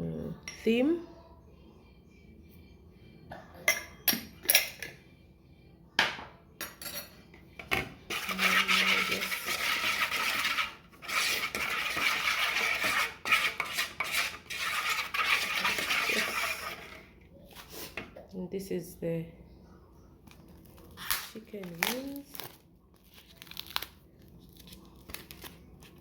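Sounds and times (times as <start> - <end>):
utensils and dishes clinking: 6.6 - 17.1
scraping and rattling: 7.6 - 17.1.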